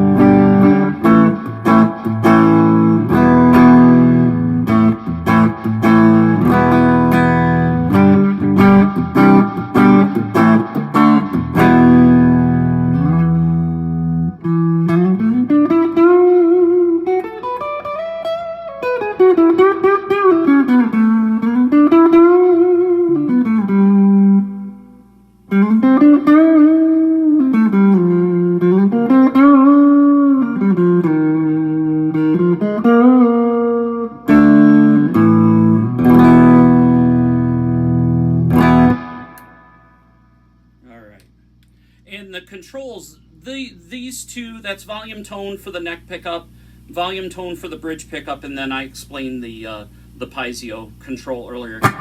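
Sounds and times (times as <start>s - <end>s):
clean electric guitar melody: 0.0s - 40.8s, 51.8s - 52.0s.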